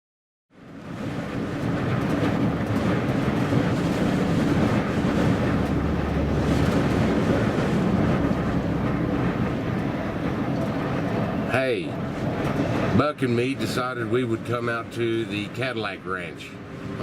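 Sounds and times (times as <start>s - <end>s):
wind noise on microphone: 0.5s - 15.7s.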